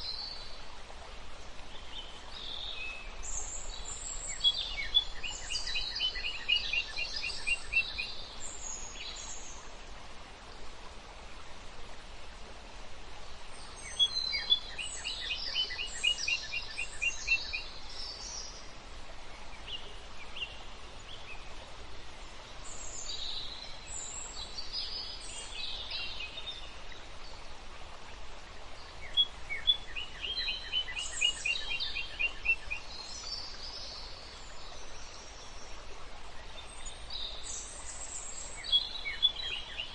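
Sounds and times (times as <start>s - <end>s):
songbirds chirping: 0.0s - 39.9s
steady background hiss: 0.0s - 39.9s.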